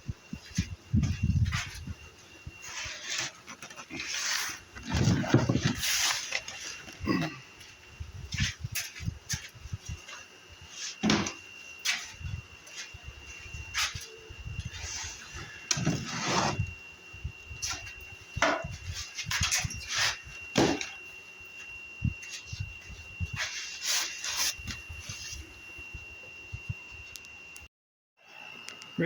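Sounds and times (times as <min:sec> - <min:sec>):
thin high whine: 0:00.0 - 0:29.0
wood scraping and knocking on wood: 0:02.6 - 0:06.6, 0:15.7 - 0:16.6.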